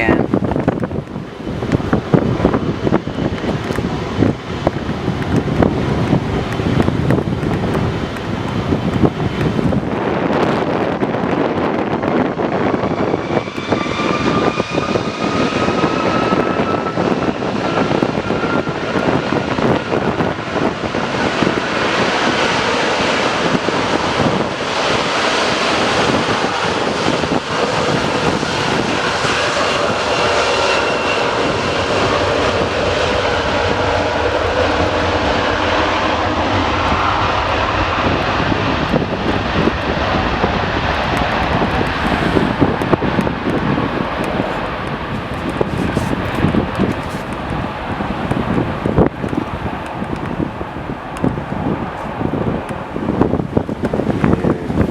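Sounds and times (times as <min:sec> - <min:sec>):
jet engines running loud: 0:00.0 - 0:54.9.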